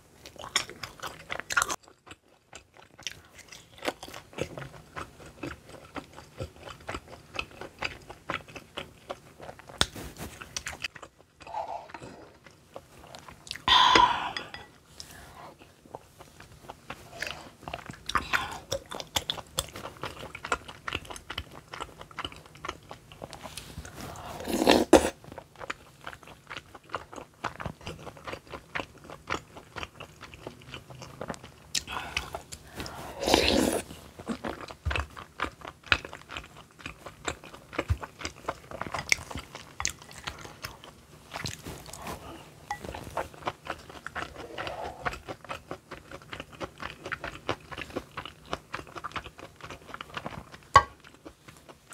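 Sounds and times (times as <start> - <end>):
person chewing food: 0.1 - 51.9
louder eating bursts: 30.4 - 35.4.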